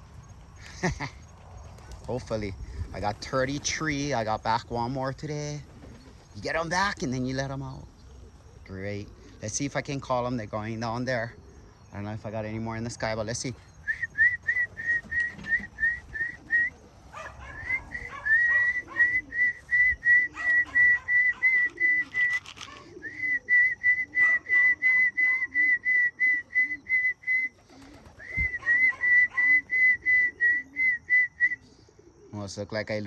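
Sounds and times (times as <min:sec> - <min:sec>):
person whistling short notes: 0:13.9 - 0:16.7, 0:17.6 - 0:27.6, 0:28.2 - 0:31.6.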